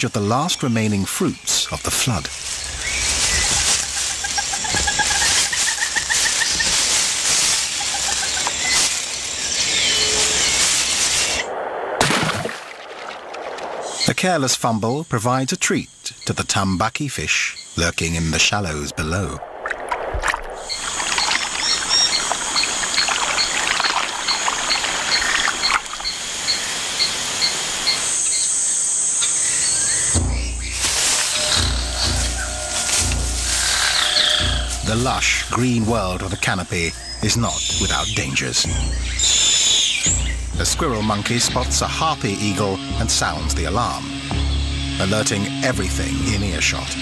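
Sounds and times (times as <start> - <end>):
dense rainforest hiss: 0.0 - 11.5, 13.8 - 19.4, 20.6 - 47.0
insect drone: 0.3 - 16.8, 17.6 - 47.0
crackling and rustling: 1.0 - 13.9, 30.0 - 41.5
high chirp: 24.3 - 47.0.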